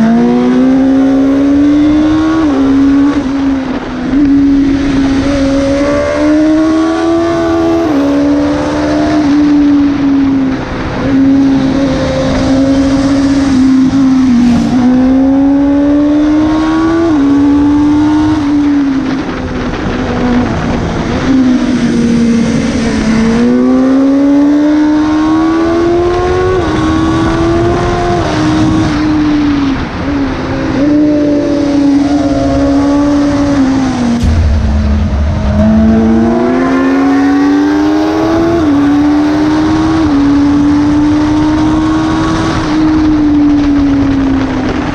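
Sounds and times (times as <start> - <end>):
road noise: 0.0 - 44.9
rushing wind: 0.0 - 44.9
motorcycle engine revving: 11.0 - 18.3.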